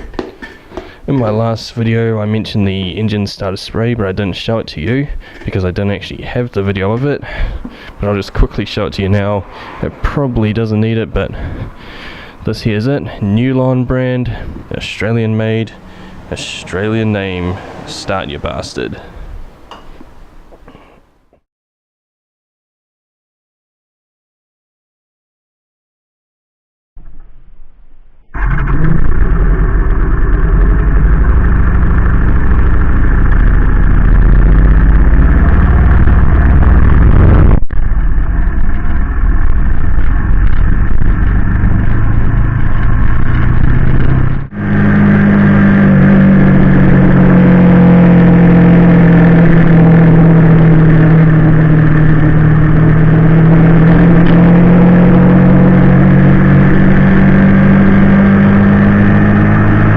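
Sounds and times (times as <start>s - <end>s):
motorcycle engine running: 28.4s - 59.9s.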